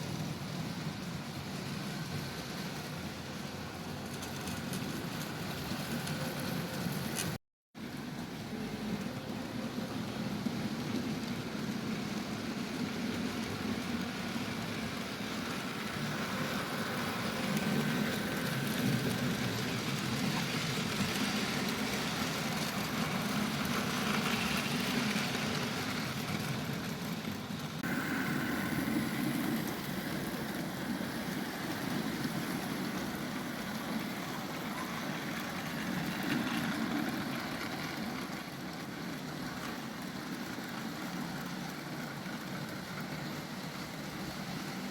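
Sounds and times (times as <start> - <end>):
wheels rumbling on rails: 0.0 - 44.9.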